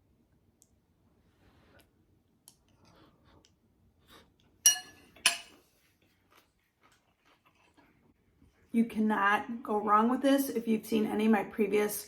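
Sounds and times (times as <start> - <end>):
utensil clinking on a dish: 4.7 - 5.6.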